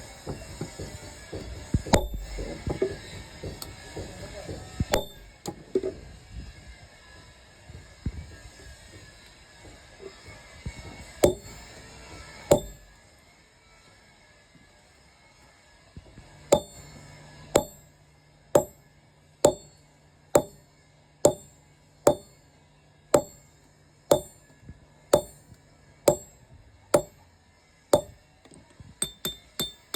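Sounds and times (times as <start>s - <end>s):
hammer striking metal on anvil: 1.4s - 3.8s, 4.9s - 5.6s, 11.2s - 11.7s, 12.5s - 12.9s, 16.6s - 17.0s, 17.6s - 17.9s, 18.6s - 18.8s, 19.5s - 19.8s, 20.4s - 20.6s, 21.3s - 22.5s, 23.2s - 23.5s, 24.1s - 24.5s, 25.2s - 26.4s, 27.0s - 27.2s, 28.0s - 28.2s, 29.0s - 29.9s.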